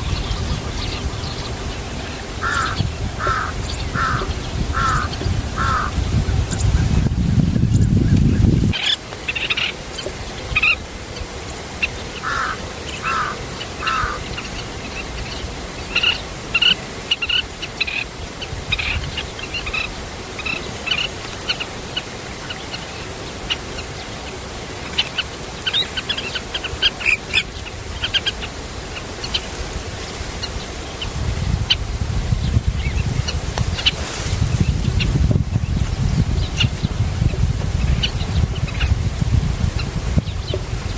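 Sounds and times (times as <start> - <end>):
lower longer bird calls: 0.0 - 6.8, 11.8 - 24.0
birds chirping high calls: 0.0 - 6.9, 7.7 - 24.1.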